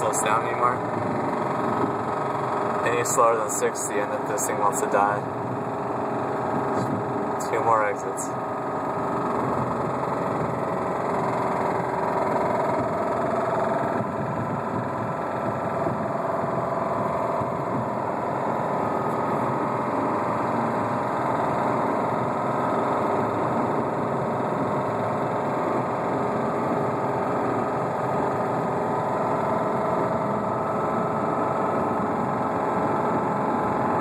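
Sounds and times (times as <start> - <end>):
road noise inside car: 0.0 - 34.0
car engine with rapid knock: 8.4 - 34.0.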